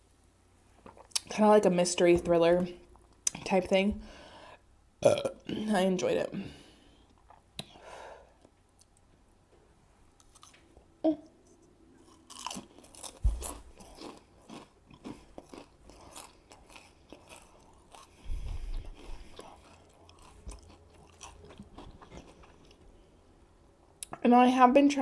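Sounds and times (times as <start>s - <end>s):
crunching potato chip: 12.0s - 18.2s, 18.8s - 22.8s.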